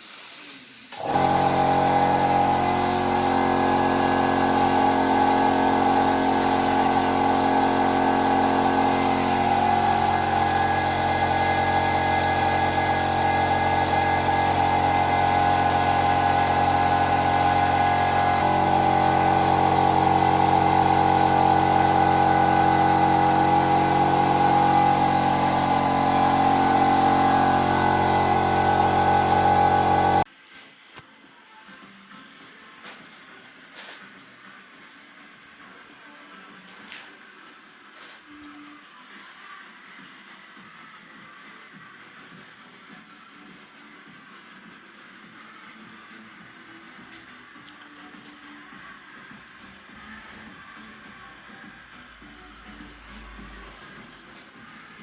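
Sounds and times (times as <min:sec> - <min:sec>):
power tool motor humming: 0:00.9 - 0:30.3.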